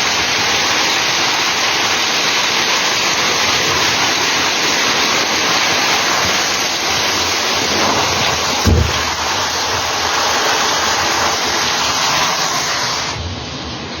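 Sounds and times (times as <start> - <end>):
heavy hail pelting: 0.0 - 13.1
low thump: 8.6 - 9.1.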